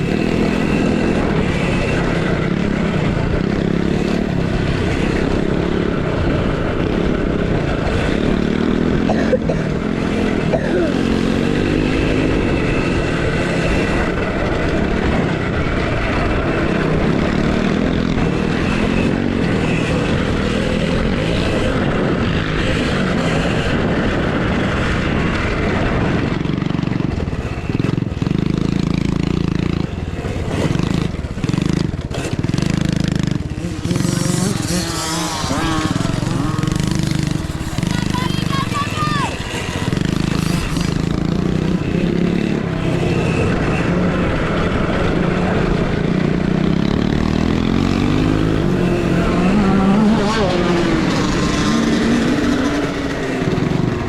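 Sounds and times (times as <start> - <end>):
motocross bikes revving: 0.0 - 54.0
rushing wind noise: 0.0 - 54.0
person speaking: 37.4 - 39.6.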